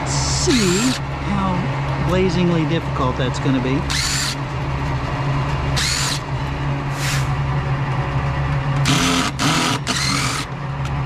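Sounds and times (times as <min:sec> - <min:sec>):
low hum: 0:00.0 - 0:11.0
cordless drill bursts: 0:00.5 - 0:01.0, 0:03.9 - 0:04.4, 0:05.8 - 0:06.2, 0:08.8 - 0:10.5.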